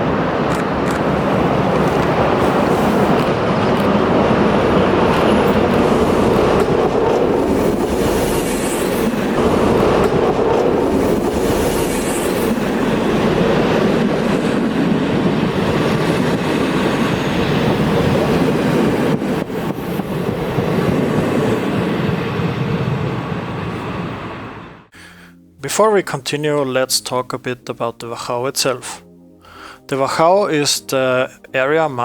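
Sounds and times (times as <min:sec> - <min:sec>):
train wheels clattering on track: 0:00.1 - 0:22.4.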